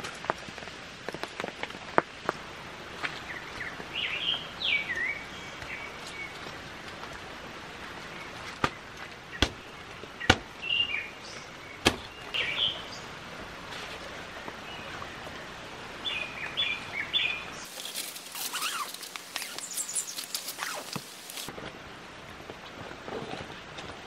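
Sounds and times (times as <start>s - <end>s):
steady hiss of rain: 0.0s - 24.0s
birds chirping: 8.0s - 13.2s, 16.0s - 21.5s.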